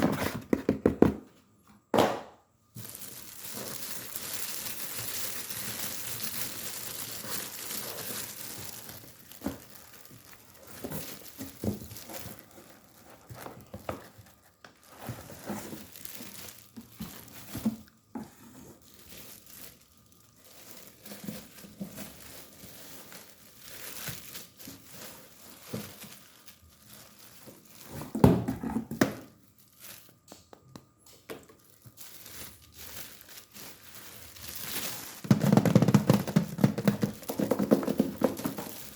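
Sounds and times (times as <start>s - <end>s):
packaging crinkling and tearing: 2.7s - 38.9s.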